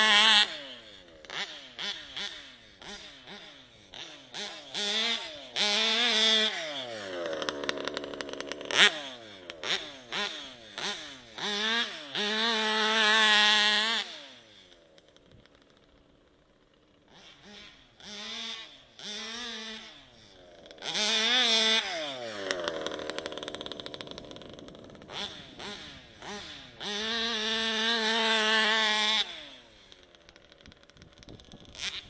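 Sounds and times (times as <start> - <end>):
two-stroke engine revving: 0.0 - 32.0.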